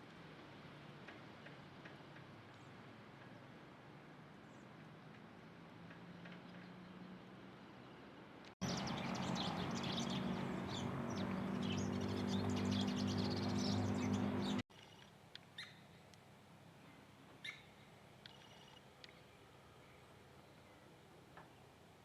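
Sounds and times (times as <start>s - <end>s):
small birds chirping: 8.6s - 15.0s.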